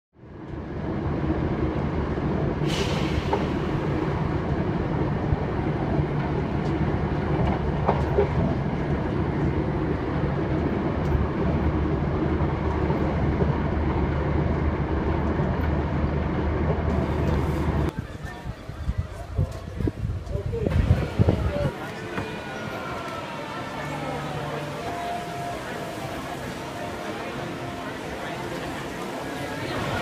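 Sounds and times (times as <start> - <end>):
moving vehicle rumbling: 0.2 - 18.0.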